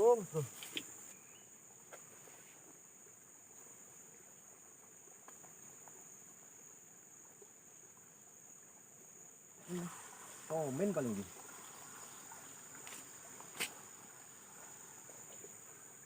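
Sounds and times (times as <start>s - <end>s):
insects chirring: 0.0s - 16.0s
faint ticks: 1.8s - 2.8s, 4.4s - 6.4s.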